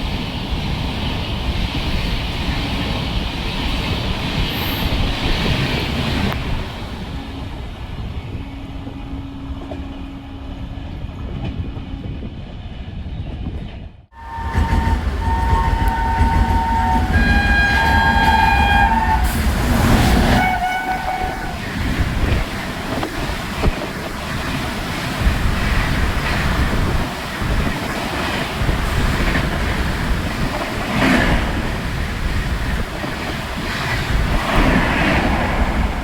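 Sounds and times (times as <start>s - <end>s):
train rumbling on rails: 0.0s - 36.0s
train horn blasts: 14.1s - 21.8s.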